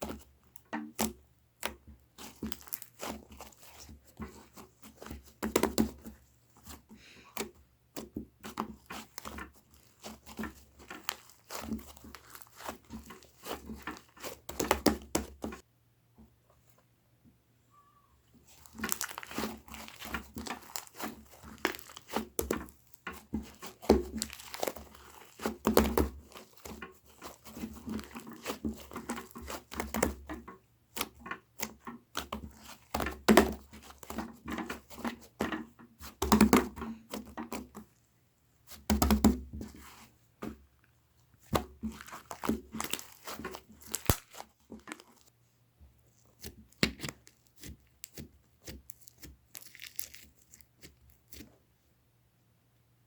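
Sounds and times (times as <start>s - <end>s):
slime squelching: 0.0s - 15.7s, 18.2s - 45.4s, 46.0s - 51.6s
slime crackling and popping: 0.9s - 3.8s, 8.8s - 15.6s, 18.5s - 30.3s, 41.4s - 45.3s, 46.4s - 51.4s.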